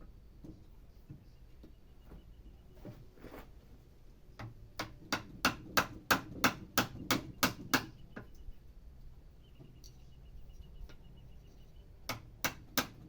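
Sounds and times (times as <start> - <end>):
hammer striking wood chisel: 4.4 - 8.0, 12.1 - 13.0.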